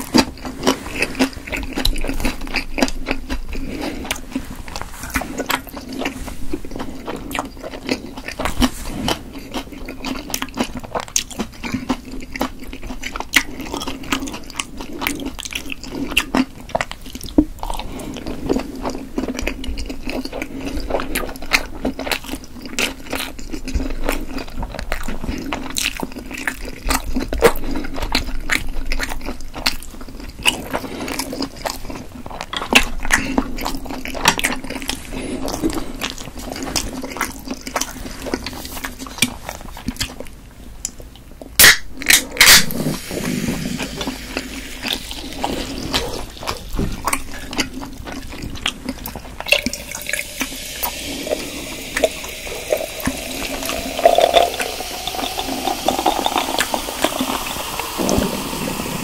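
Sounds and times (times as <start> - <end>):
biting and chewing dumplings: 0.0 - 51.6
steady low hum: 42.3 - 59.0.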